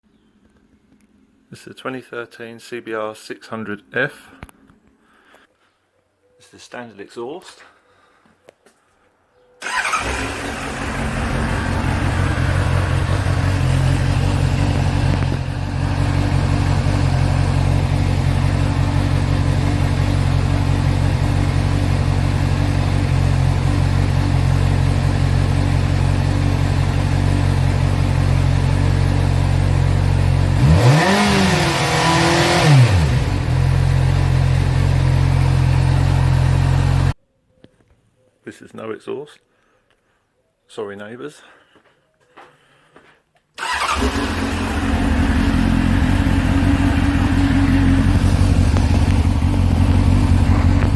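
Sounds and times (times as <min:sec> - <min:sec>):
motorcycle engine idling and revving: 0:09.6 - 0:37.2, 0:43.6 - 0:50.9.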